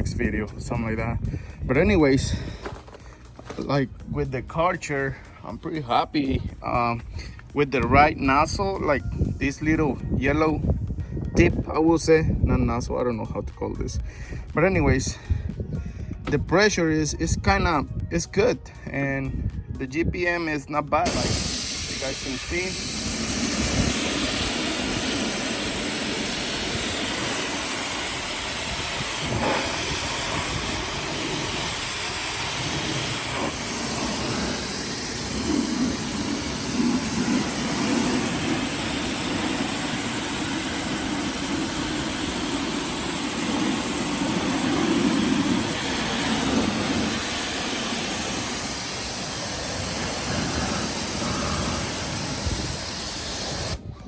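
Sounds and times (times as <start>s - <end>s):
pressure washer pump running: 21.0s - 53.8s
water jet hissing: 21.0s - 53.9s.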